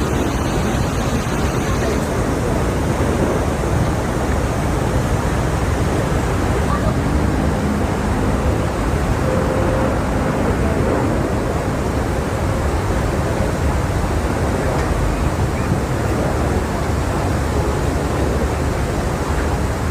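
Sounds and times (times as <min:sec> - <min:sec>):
faint jet engine whine: 0:00.0 - 0:06.2
jet engines rushing: 0:00.0 - 0:09.2.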